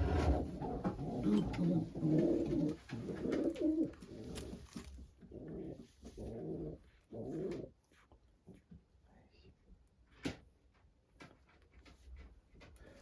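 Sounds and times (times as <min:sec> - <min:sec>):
pigeons cooing: 0:00.0 - 0:04.6, 0:05.3 - 0:07.7.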